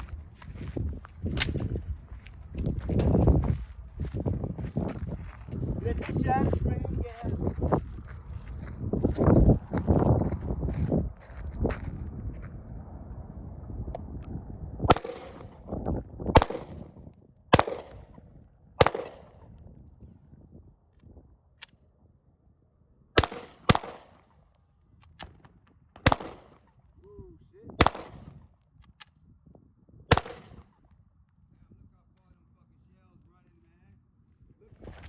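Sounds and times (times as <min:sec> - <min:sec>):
pistol shots: 0:14.9 - 0:15.7, 0:16.3 - 0:16.9, 0:17.5 - 0:18.2, 0:18.8 - 0:19.4, 0:23.2 - 0:24.2, 0:26.0 - 0:26.7, 0:27.8 - 0:28.4, 0:30.1 - 0:30.7.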